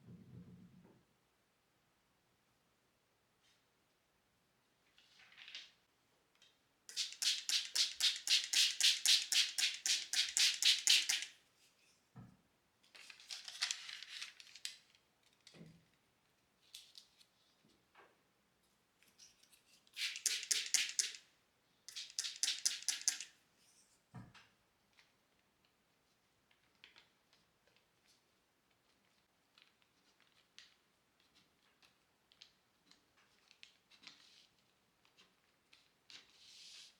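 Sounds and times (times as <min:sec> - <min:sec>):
rapid scratching strokes: 0:06.9 - 0:11.3, 0:20.0 - 0:21.2, 0:21.9 - 0:23.3.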